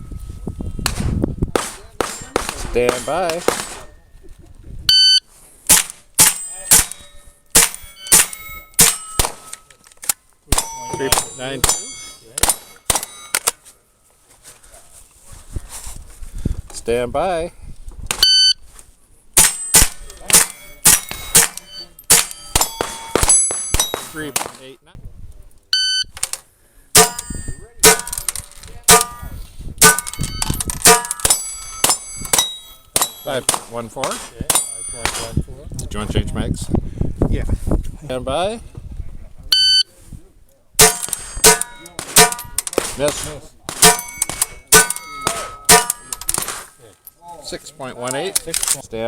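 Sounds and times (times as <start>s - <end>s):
rimfire gunshots: 0.8s - 3.9s, 5.7s - 9.5s, 19.4s - 24.7s, 40.8s - 46.7s
steel targets ringing: 1.6s - 4.0s, 6.2s - 9.8s, 10.5s - 13.7s, 19.4s - 24.6s, 27.0s - 33.5s, 34.1s - 35.5s, 40.8s - 46.8s.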